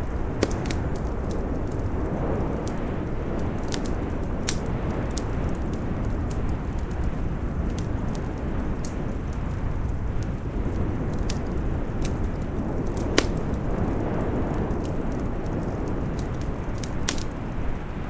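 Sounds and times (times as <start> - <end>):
storm wind rumble: 0.0 - 18.0
wood fire crackling: 0.0 - 18.0.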